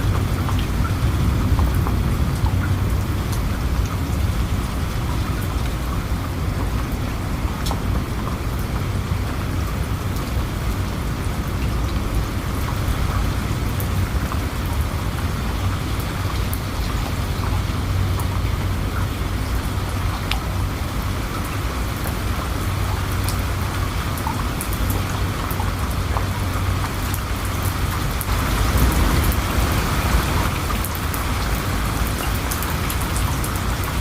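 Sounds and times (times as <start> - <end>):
raindrops ticking: 0.0 - 34.0
steady rain falling: 0.0 - 34.0.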